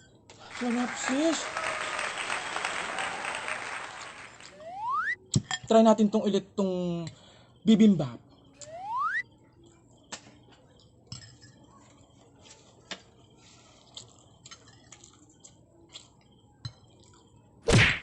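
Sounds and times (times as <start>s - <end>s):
rising whistle-like tone: 4.5s - 5.2s, 8.6s - 9.2s
spoon clinking against bowl: 11.1s - 11.6s.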